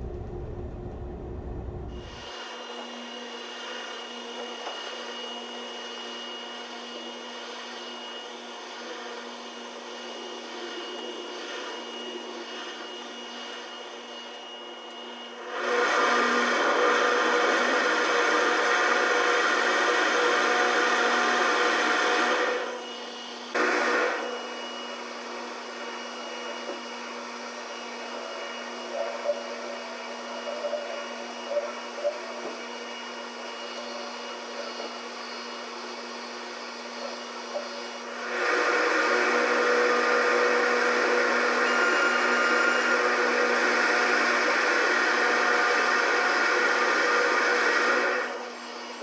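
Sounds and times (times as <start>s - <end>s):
ferry machinery humming: 0.0s - 2.2s.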